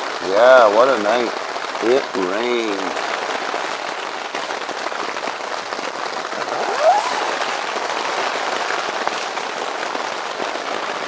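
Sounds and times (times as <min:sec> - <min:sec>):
rain pattering on tent fabric: 0:00.0 - 0:11.0
brief rising tone: 0:06.4 - 0:07.9.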